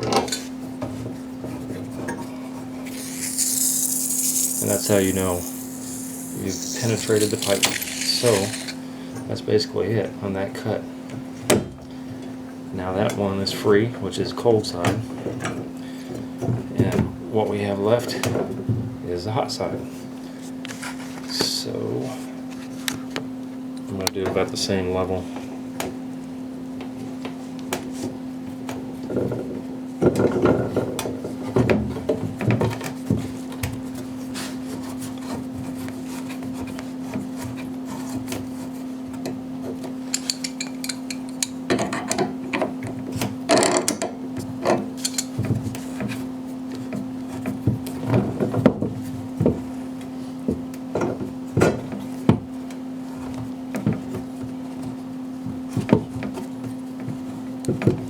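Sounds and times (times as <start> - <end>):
tubing cutter on copper pipe: 2.8 - 8.8.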